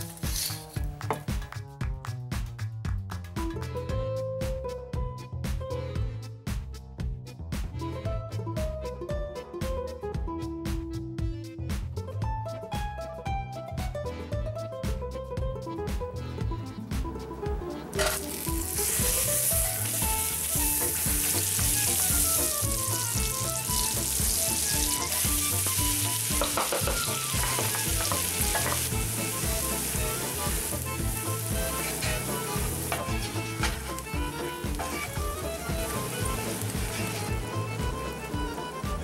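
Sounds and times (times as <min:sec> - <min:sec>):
butter sizzling in a skillet: 0:00.0 - 0:00.8, 0:17.9 - 0:39.0.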